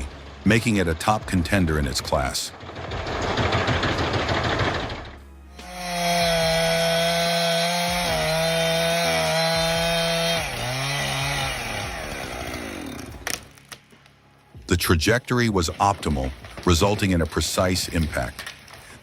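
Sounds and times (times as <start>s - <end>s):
chainsaw cutting: 5.5s - 13.4s
chainsaw running: 5.5s - 13.4s.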